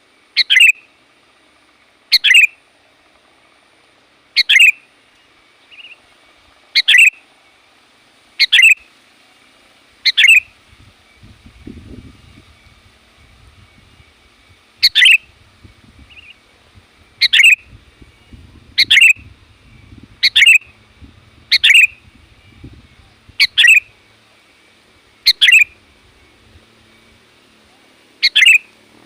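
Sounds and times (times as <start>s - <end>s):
bird double-noted call: 0.4s - 0.9s, 2.1s - 2.6s, 4.4s - 4.8s, 6.8s - 7.2s, 8.4s - 8.8s, 10.0s - 10.5s, 14.8s - 15.3s, 17.2s - 17.7s, 18.8s - 19.3s, 20.2s - 20.7s, 21.5s - 22.6s, 23.4s - 23.9s, 25.2s - 25.8s, 28.2s - 28.7s.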